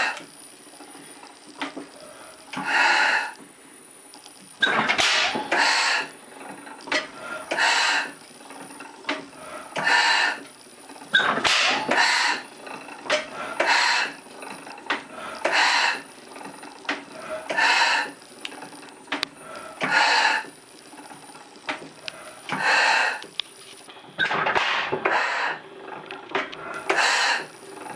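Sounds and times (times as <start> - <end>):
mechanical clicks: 4.1 - 5.7
gas engine bursts: 4.6 - 8.2, 11.1 - 16.5.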